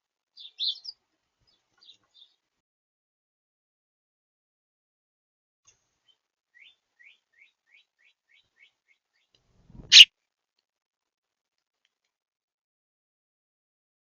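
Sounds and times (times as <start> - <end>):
small bird chirping: 0.4 - 2.3, 9.7 - 10.1.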